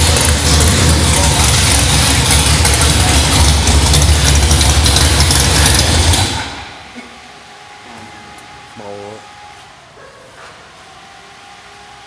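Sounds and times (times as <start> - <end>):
drag car engine rumbling: 0.0 - 6.9.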